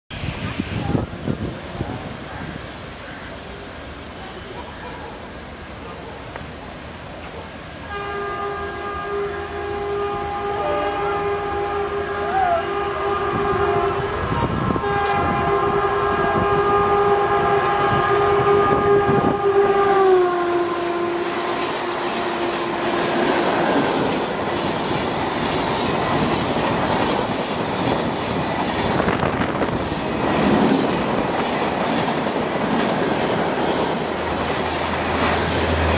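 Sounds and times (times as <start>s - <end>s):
train coaches clickety-clack: 0.1s - 35.9s
locomotive horn blast: 7.8s - 24.5s.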